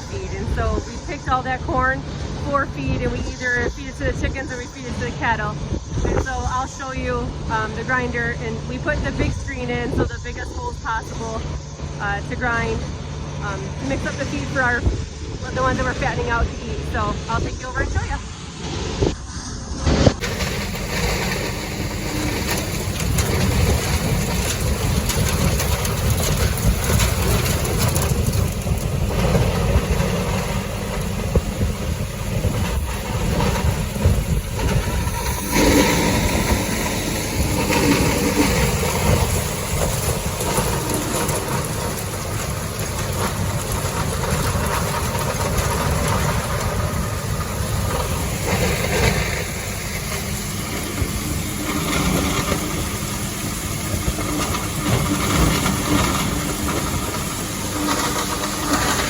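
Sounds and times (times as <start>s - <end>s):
engine running: 0.0s - 59.0s
feed grinder grinding corn: 20.2s - 59.0s.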